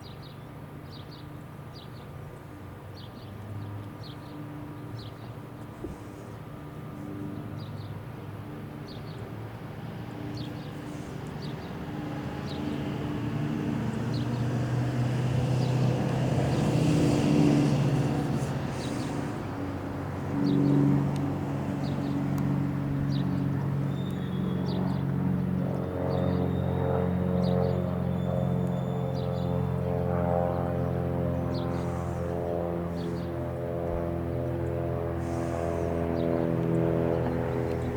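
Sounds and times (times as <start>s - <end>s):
vehicle engines passing: 6.8s - 26.3s, 30.7s - 37.9s.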